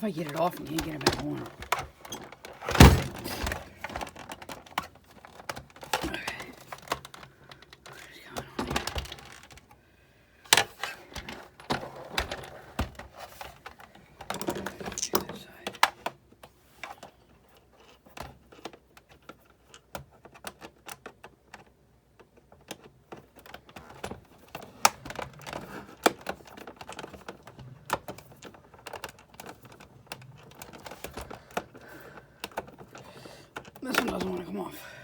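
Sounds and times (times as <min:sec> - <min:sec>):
plastic and metal parts knocking: 0:18.3 - 0:34.4.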